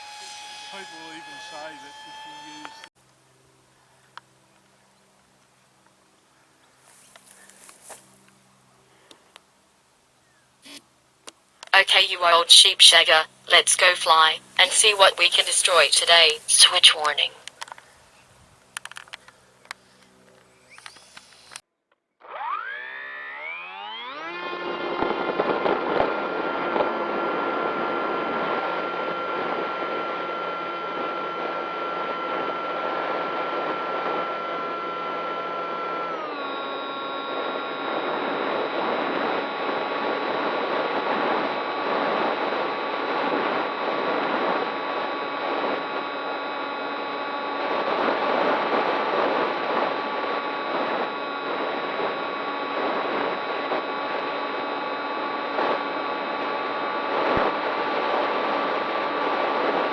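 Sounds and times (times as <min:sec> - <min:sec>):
electric motor high whine: 0:00.0 - 0:02.9, 0:18.7 - 0:21.6, 0:22.2 - 0:59.9.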